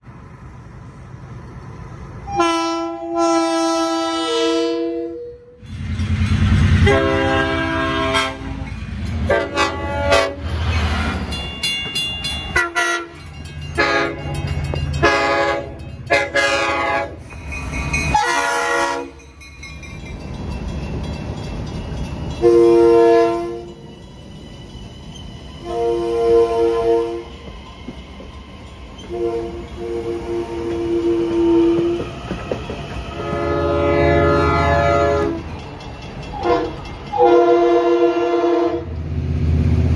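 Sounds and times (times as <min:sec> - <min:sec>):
low rumble of train: 0:00.0 - 0:39.9
train air horn blasts: 0:02.2 - 0:05.6, 0:06.7 - 0:08.7, 0:09.3 - 0:10.5, 0:12.5 - 0:13.2, 0:13.8 - 0:14.4, 0:15.0 - 0:17.4, 0:18.1 - 0:19.2, 0:22.4 - 0:23.8, 0:25.6 - 0:27.3, 0:29.0 - 0:32.0, 0:33.2 - 0:35.4, 0:36.3 - 0:38.9.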